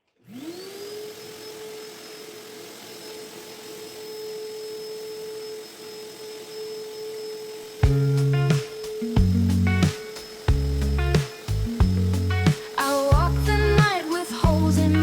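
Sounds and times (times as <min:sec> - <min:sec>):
vacuum cleaner motor whine: 0:00.0 - 0:13.2
rushing air hiss: 0:07.6 - 0:15.0.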